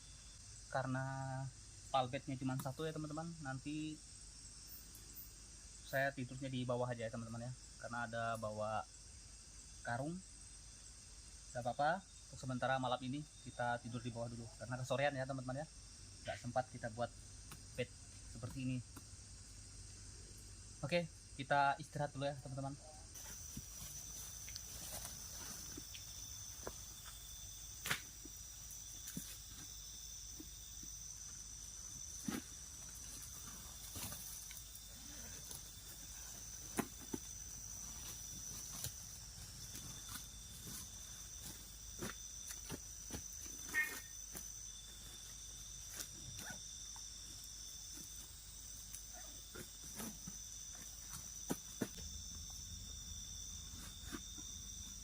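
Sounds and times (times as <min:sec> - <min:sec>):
insect chorus trilling: 0:00.0 - 0:55.0.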